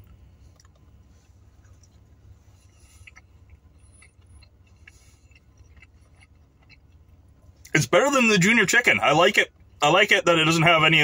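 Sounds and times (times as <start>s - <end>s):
quiet chewing: 0.0s - 7.7s
low steady hum: 0.0s - 11.0s.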